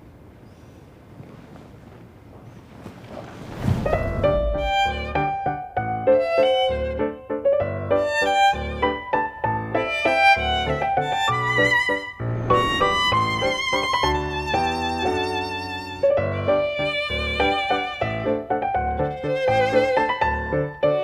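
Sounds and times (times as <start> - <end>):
low bass notes: 3.8 - 6.1, 12.1 - 14.5
violin melody: 3.9 - 21.0.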